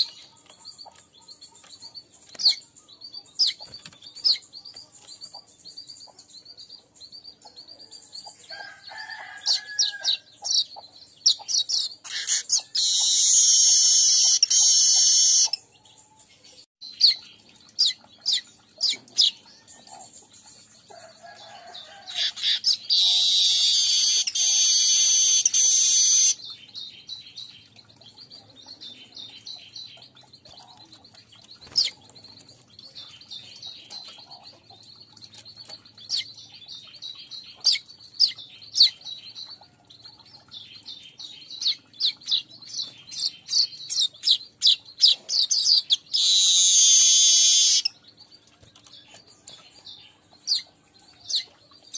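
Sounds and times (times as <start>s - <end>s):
bird buzzy wheezing song: 46.2s - 47.9s.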